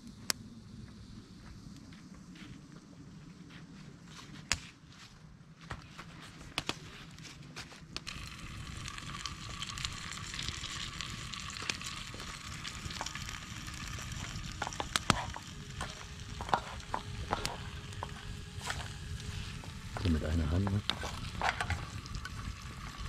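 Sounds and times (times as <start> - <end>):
food sizzling in a pan: 8.0 - 23.0.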